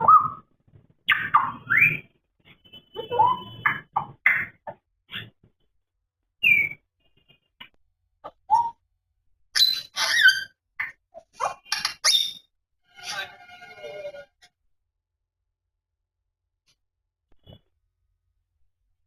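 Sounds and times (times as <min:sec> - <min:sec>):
parrot whistling and squeaking: 0:00.0 - 0:00.4, 0:01.1 - 0:02.1, 0:06.4 - 0:06.8, 0:09.5 - 0:14.1.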